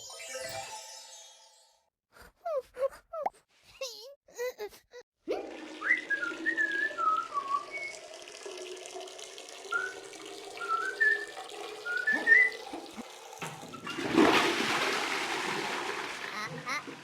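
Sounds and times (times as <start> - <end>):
short sliding whistled notes: 5.8 - 8.0, 9.7 - 10.0, 10.6 - 12.7.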